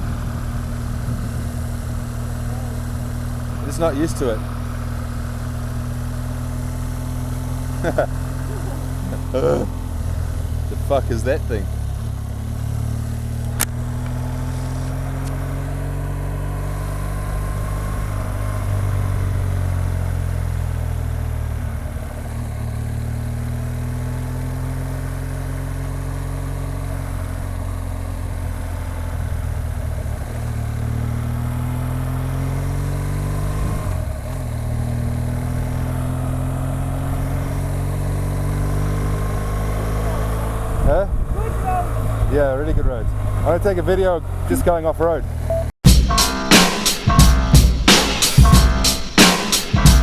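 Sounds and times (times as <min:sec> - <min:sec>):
motorcycle engine shifting gears: 0:00.0 - 0:40.8.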